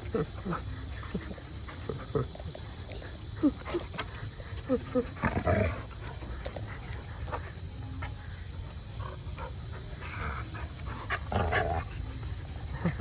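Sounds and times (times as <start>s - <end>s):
faint animal noises: 0.0s - 13.0s.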